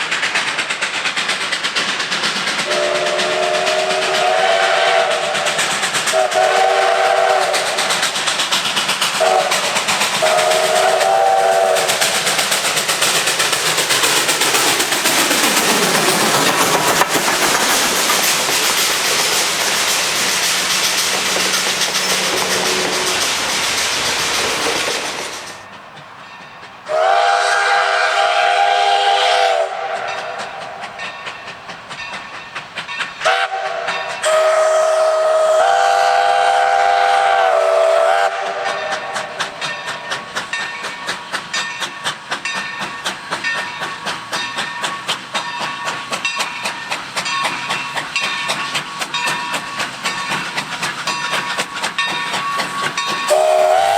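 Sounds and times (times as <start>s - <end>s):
train rushing and clattering past: 0.0s - 53.9s
steam locomotive whistle: 2.6s - 8.2s, 9.1s - 12.6s, 18.0s - 25.6s, 26.8s - 31.1s, 33.2s - 40.5s, 51.2s - 53.9s.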